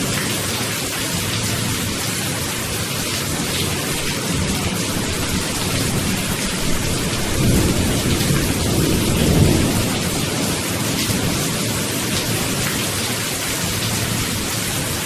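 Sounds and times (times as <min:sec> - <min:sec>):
steady rain: 0:00.0 - 0:15.0
low thunder rumbles: 0:03.3 - 0:12.8.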